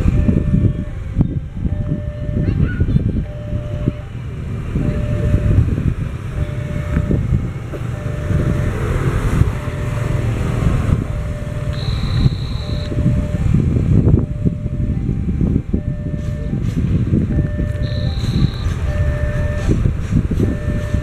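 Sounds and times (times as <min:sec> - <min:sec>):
wheels rumbling on rail: 0:00.0 - 0:21.0
high steady squeal: 0:11.0 - 0:14.8, 0:17.4 - 0:21.0.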